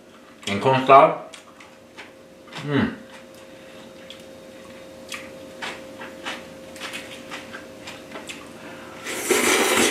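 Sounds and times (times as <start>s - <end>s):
person chewing food: 1.3s - 8.6s.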